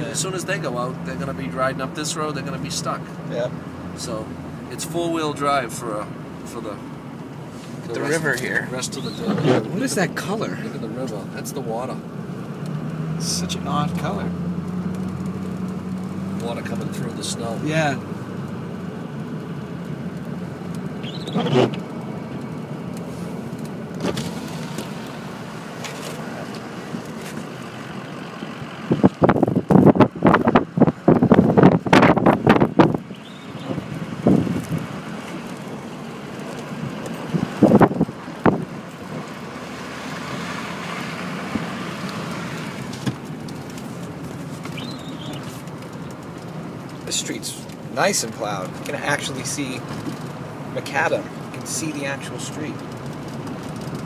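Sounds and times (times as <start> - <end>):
vehicle road and engine noise: 0.0 - 54.0
wind buffeting microphone: 28.6 - 35.5, 36.9 - 39.2.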